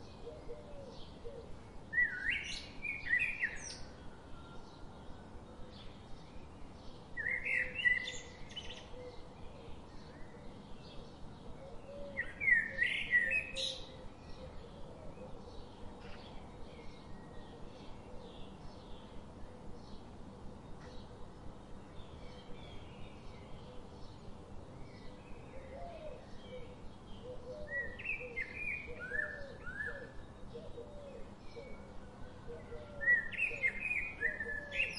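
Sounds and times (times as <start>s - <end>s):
faint steady background noise: 0.0s - 34.9s.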